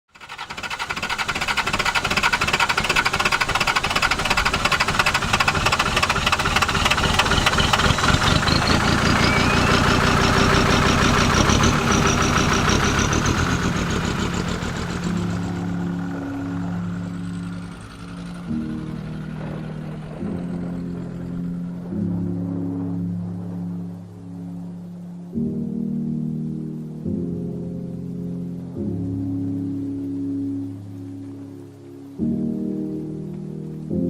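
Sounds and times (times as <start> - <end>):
vehicle engine running hard: 0.1 - 24.0
rising whine: 2.9 - 31.0
music: 6.8 - 34.0.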